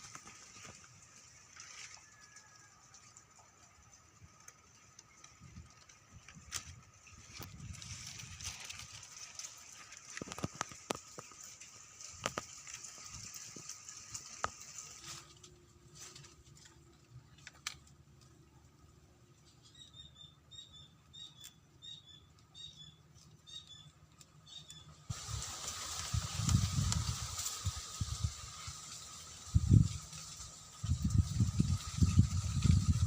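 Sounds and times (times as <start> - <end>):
light clicks and rustling: 4.4 - 18.4
bird chirping: 19.4 - 25.1.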